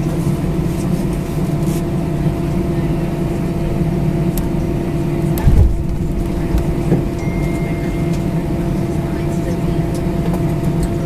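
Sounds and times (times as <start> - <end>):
aircraft engines humming: 0.0 - 11.0
low thump: 5.4 - 7.1
thin high tone: 7.1 - 8.6.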